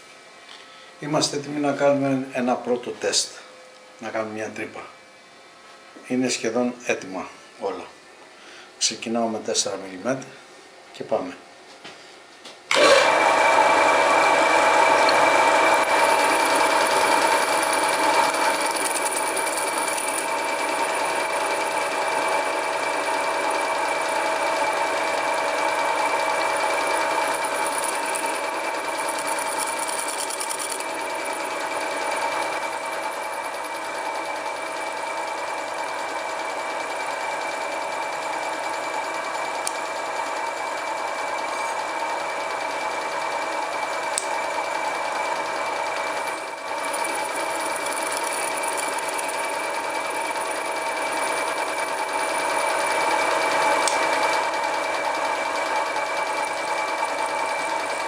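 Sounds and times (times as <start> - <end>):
lathe motor whirring: 12.7 - 58.0.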